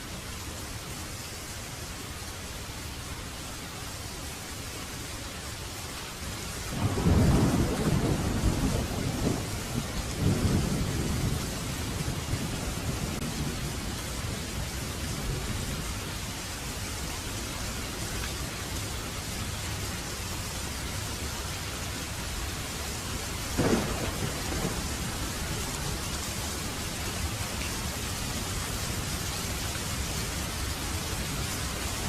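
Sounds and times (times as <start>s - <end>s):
heavy rain falling: 0.0s - 32.0s
thunder clap rumbling: 6.7s - 15.6s, 23.6s - 27.4s.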